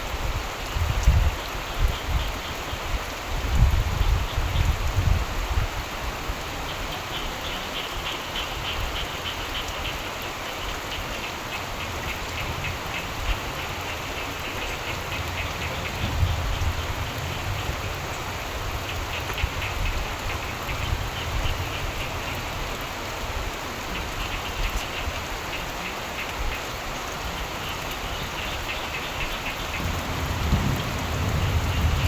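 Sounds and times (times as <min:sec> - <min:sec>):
steady rain: 0:00.0 - 0:32.0
frogs trilling: 0:06.6 - 0:32.0
distant thunder rumbles: 0:14.6 - 0:22.0, 0:29.6 - 0:32.0.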